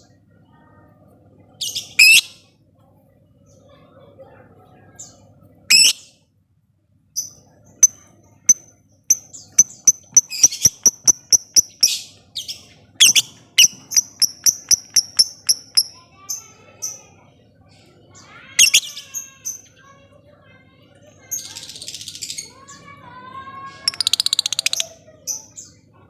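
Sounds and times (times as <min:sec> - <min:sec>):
lovebird squawks: 0:01.8 - 0:02.3, 0:05.7 - 0:06.0, 0:13.0 - 0:15.9, 0:18.6 - 0:19.0
lovebird high chips: 0:13.0 - 0:15.9.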